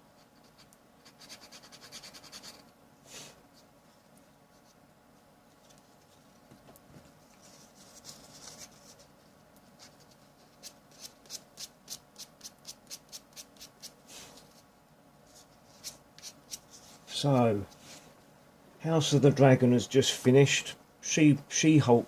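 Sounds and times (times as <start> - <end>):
sanding on plastic model part: 0.2 - 2.7, 9.8 - 14.0.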